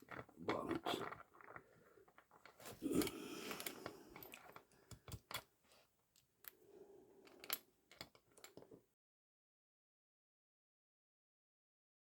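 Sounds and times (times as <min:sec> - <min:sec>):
hand tools clicking and tapping: 0:02.4 - 0:05.5.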